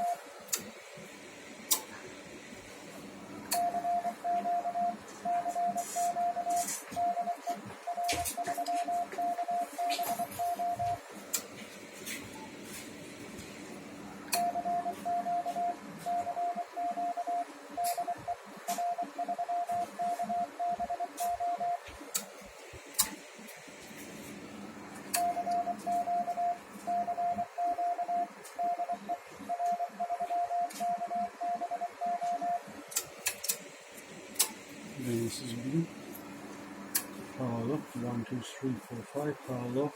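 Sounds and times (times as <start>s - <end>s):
morse code beeping tone: 0.0s - 0.2s, 3.6s - 11.0s, 14.4s - 21.8s, 25.2s - 32.6s
sharp clicks: 22.9s - 23.2s, 34.4s - 34.6s.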